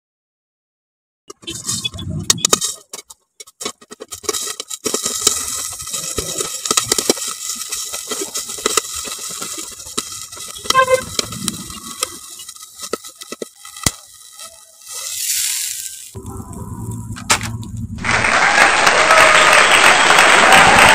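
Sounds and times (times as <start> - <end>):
food sizzling in hot oil: 4.0 - 18.2.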